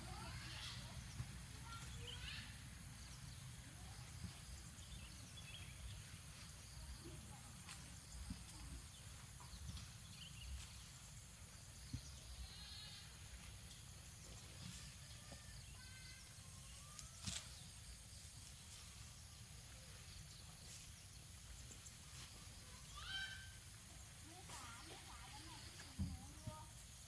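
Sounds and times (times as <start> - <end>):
steady background hiss: 0.0 - 27.0
faint animal calls: 22.7 - 23.9.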